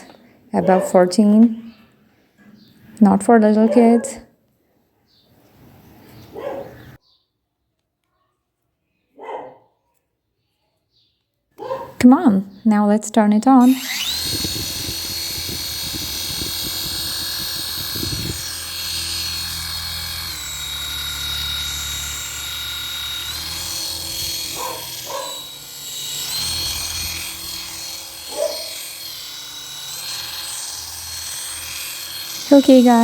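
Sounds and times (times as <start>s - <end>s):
toy helicopter motor whine: 13.6s - 33.0s.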